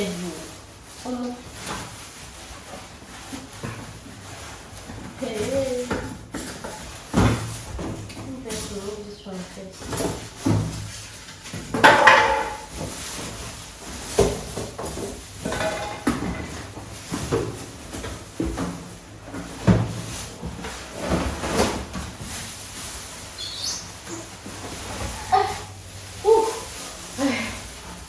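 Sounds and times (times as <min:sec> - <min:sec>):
packing knocks and scrapes: 0:01.0 - 0:09.1, 0:09.7 - 0:28.0.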